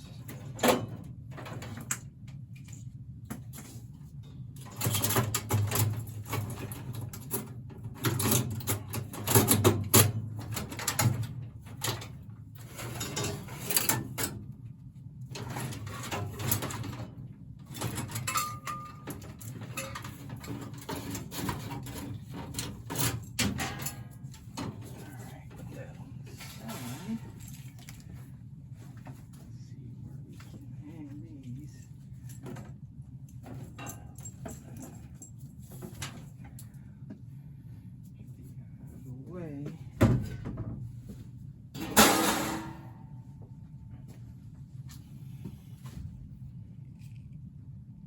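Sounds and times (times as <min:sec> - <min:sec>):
low steady hum: 0:00.0 - 0:48.0
tools knocking and clattering: 0:04.6 - 0:14.4, 0:15.3 - 0:25.1, 0:32.2 - 0:36.4.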